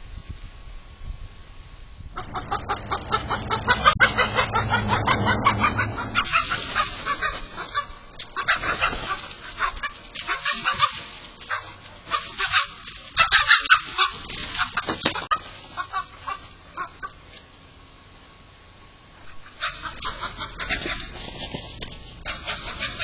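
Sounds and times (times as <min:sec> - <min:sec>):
chickens squawking in alarm: 0:02.1 - 0:17.4, 0:19.2 - 0:23.0.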